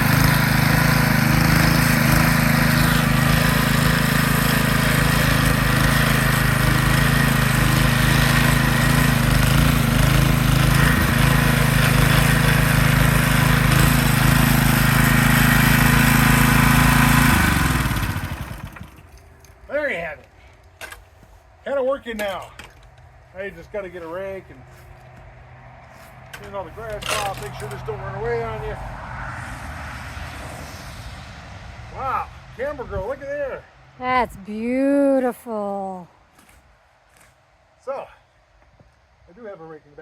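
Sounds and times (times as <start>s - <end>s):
engine winding down: 0.0s - 19.2s
small engine running: 0.0s - 19.2s.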